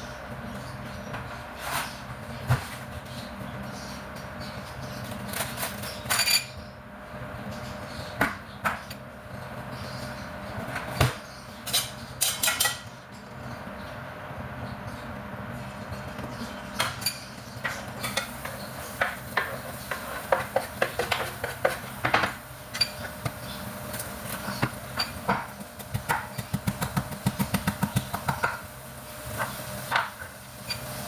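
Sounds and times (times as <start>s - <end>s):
utensils and dishes clattering: 5.0s - 6.6s, 11.6s - 13.2s, 15.9s - 28.6s, 29.2s - 31.0s.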